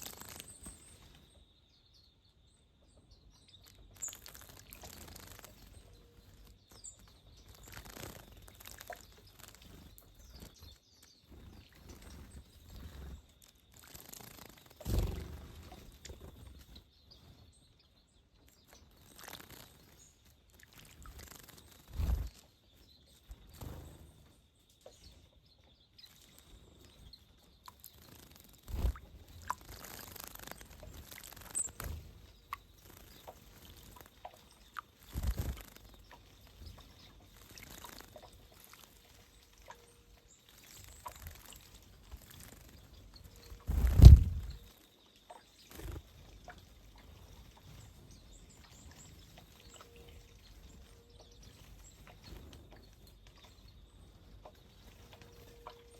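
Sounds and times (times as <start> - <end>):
faint bird calls: 27.6 - 55.9
dull low thumps: 43.7 - 44.6.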